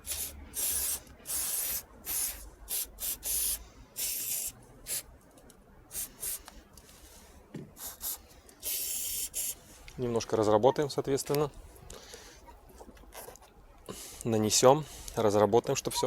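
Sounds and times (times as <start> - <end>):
aerosol can spraying hissing spurts: 0.0 - 5.0, 5.9 - 6.5, 7.8 - 9.6.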